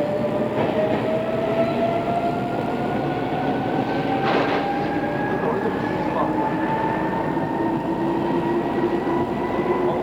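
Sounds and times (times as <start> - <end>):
train wheels rumbling: 0.0 - 10.0.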